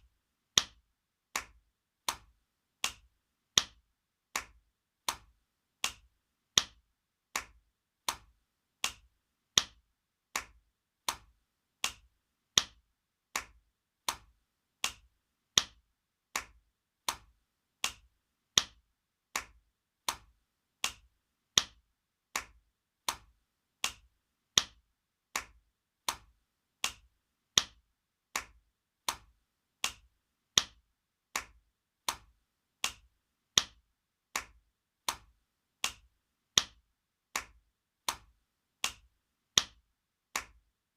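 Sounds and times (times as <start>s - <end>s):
sharp slaps: 1.4s - 3.8s, 4.4s - 6.8s, 7.4s - 9.8s, 10.4s - 12.8s, 13.4s - 15.8s, 16.4s - 18.8s, 19.4s - 21.8s, 22.4s - 24.8s, 25.4s - 27.8s, 28.4s - 30.8s, 31.4s - 33.8s, 34.4s - 36.8s, 37.4s - 39.8s, 40.4s - 40.6s.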